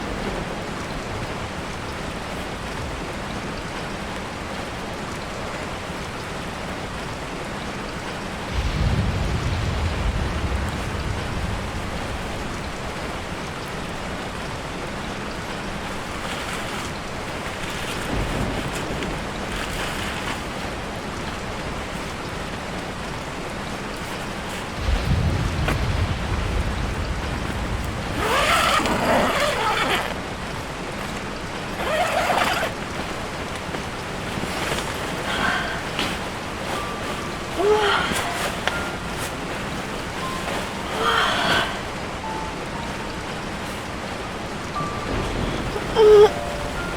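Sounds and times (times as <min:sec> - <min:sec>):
rain falling on a tarp: 0:00.0 - 0:46.9
low rumble: 0:08.5 - 0:13.6, 0:24.7 - 0:28.2.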